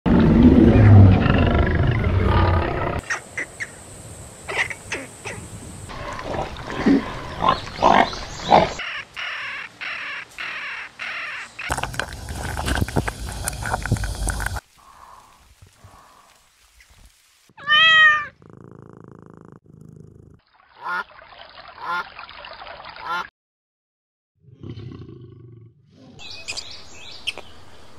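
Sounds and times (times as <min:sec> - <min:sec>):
lion rumbling: 0:00.1 - 0:03.0
pigs grunting: 0:05.9 - 0:08.8.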